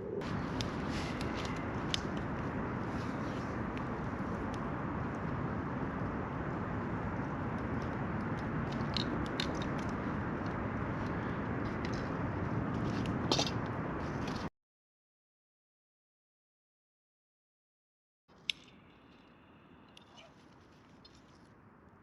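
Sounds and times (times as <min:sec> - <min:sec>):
campfire crackling and popping: 0:00.2 - 0:12.2.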